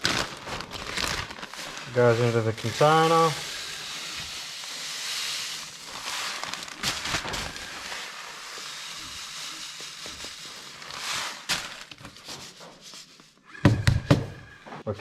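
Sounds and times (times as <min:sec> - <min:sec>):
seeds pouring into container: 0:00.0 - 0:12.6.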